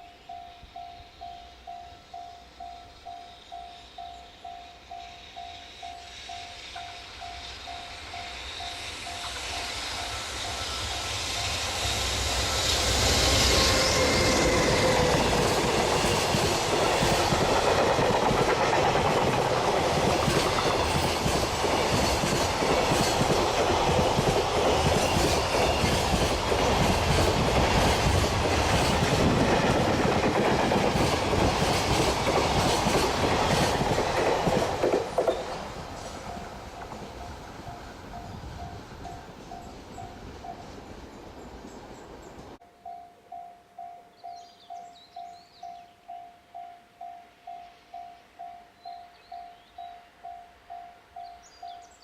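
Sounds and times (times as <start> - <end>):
electric locomotive whine: 0.0 - 52.0
train wheels clicking over rail joints: 5.3 - 40.6.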